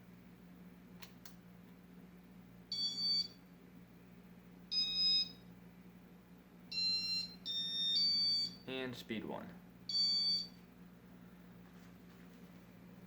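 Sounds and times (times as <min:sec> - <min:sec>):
electronic beeps: 0:09.9 - 0:10.6.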